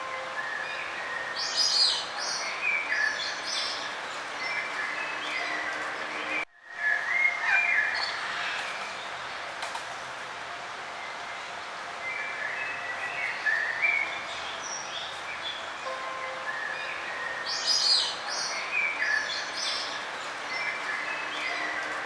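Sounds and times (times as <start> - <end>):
songbirds chirping and whistling: 0.1 - 8.3, 12.0 - 15.6, 16.2 - 22.0.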